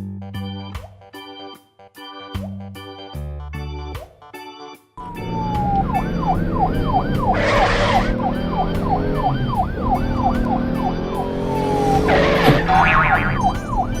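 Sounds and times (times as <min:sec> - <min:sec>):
background music: 0:00.0 - 0:14.0
cartoon siren wailing: 0:05.0 - 0:14.0.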